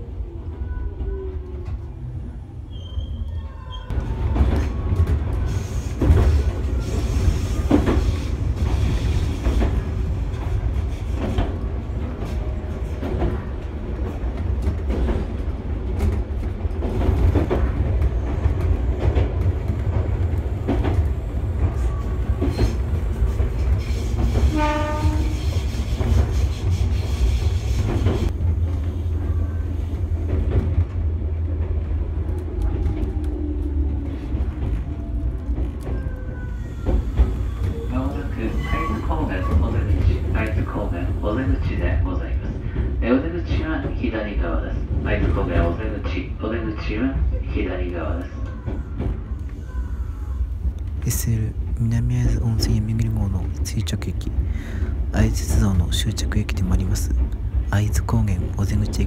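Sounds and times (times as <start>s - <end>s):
train clickety-clack rumble: 0.0s - 59.0s
train horn blast: 24.5s - 25.6s.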